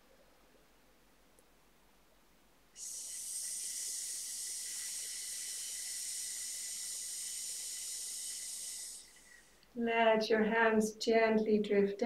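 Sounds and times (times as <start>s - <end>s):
person hissing through teeth: 2.8s - 9.7s.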